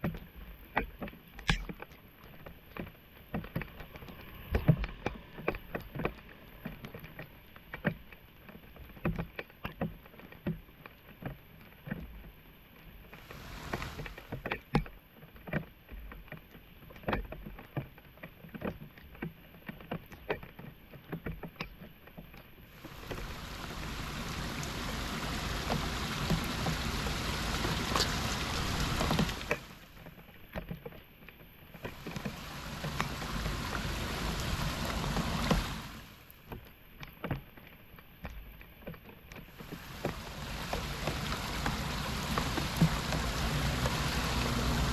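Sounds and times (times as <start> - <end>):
floodwater splashing and sloshing: 13.1 - 14.6, 22.7 - 30.8, 31.8 - 36.6, 39.4 - 44.9
water rushing into drain: 13.2 - 14.4, 22.8 - 30.0, 31.8 - 36.2, 39.5 - 44.9.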